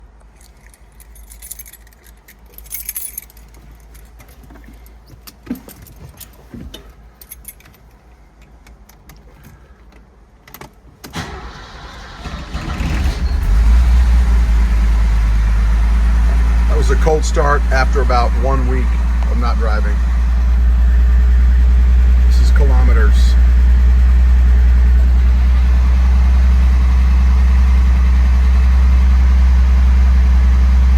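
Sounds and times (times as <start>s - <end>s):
keys jangling: 0.3s - 8.1s
car starter cranking engine: 11.0s - 30.6s.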